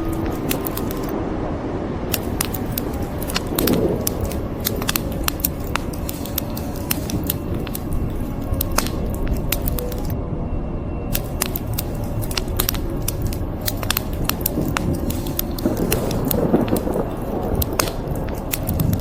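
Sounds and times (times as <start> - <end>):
wood fire crackling and popping: 0.0 - 1.1, 2.1 - 10.2, 11.1 - 19.0
rain hiss: 2.1 - 10.0, 11.2 - 19.0.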